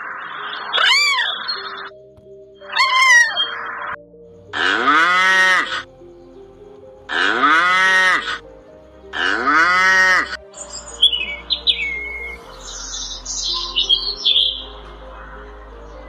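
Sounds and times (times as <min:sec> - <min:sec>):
cattle mooing: 0:04.6 - 0:05.9, 0:07.1 - 0:08.4, 0:09.1 - 0:10.4.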